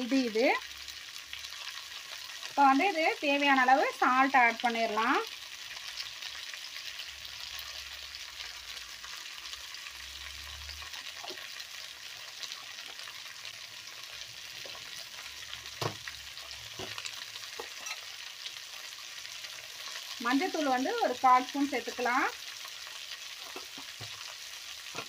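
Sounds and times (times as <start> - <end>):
vegetables frying in oil: 0.0 - 25.0
spoon knocking on pan: 15.8 - 16.1, 16.7 - 18.0.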